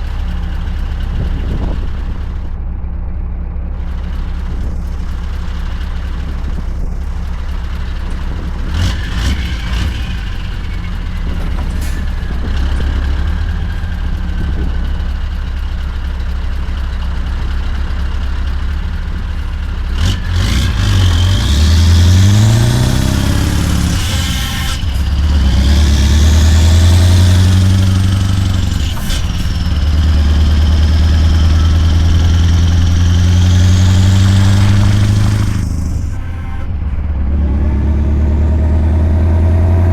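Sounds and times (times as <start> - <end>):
truck engine idling and accelerating: 0.0 - 39.9.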